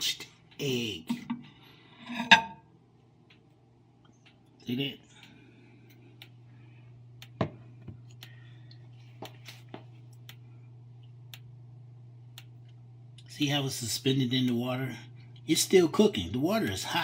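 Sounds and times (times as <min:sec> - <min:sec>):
steady low hum: 0:00.0 - 0:17.0
light clicks and taps: 0:03.2 - 0:06.4.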